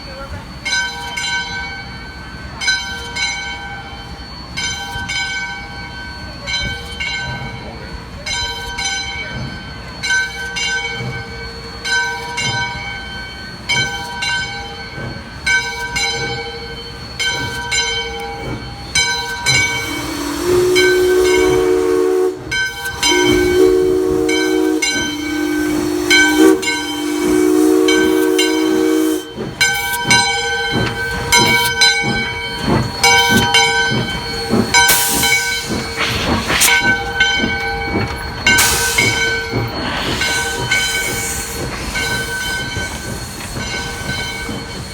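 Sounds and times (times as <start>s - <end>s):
locomotive bell ringing: 0.0s - 44.9s
steam hiss: 11.0s - 44.9s
steam exhaust chuffs: 13.8s - 44.9s
chime whistle blasts: 19.2s - 43.1s.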